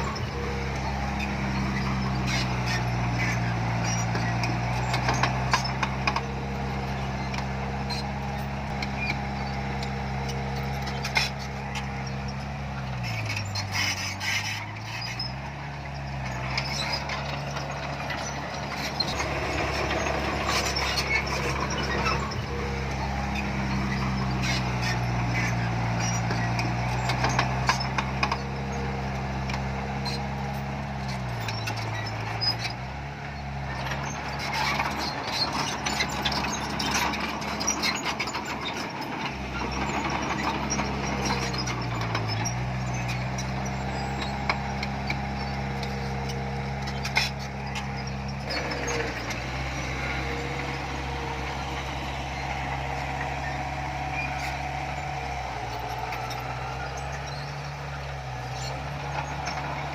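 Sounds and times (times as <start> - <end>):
heavy diesel machinery running: 0.0 - 59.9
metallic clanks and rattles: 33.7 - 59.9.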